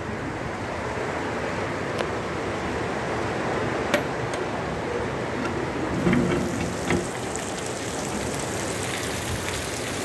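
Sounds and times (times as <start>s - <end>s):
heavy rain: 6.0s - 10.0s.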